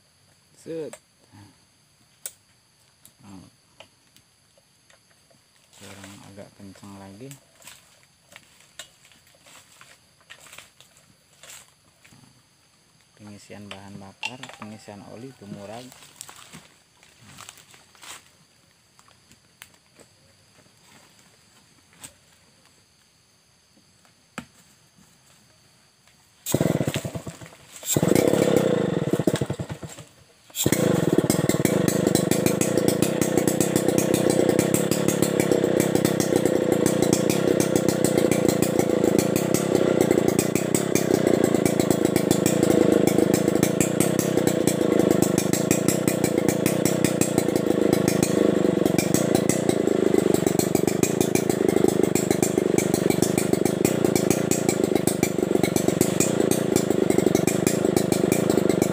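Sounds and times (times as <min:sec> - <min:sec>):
chainsaw starting and idling: 0:05.8 - 0:08.6, 0:26.4 - 0:58.9.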